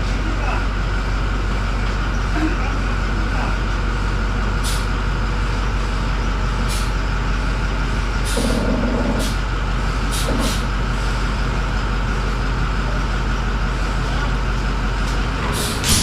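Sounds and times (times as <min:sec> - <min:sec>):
diesel engine idling: 0:00.0 - 0:16.0
air hissing: 0:15.5 - 0:16.0.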